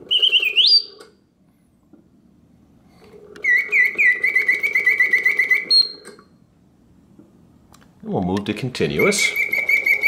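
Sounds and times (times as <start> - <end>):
mechanical bird whistling and chirping: 0.0 - 1.1, 3.4 - 6.3, 9.0 - 10.0
low steady hum: 5.4 - 10.0.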